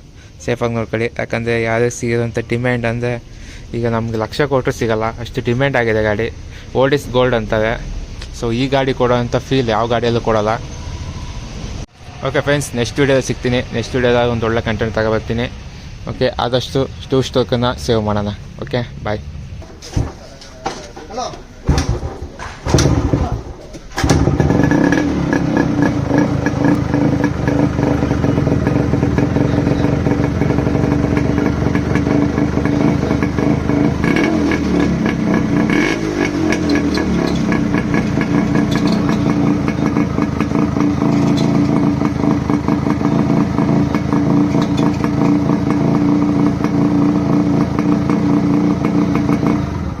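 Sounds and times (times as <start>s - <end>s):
two-stroke motorcycle engine running: 22.0s - 50.0s.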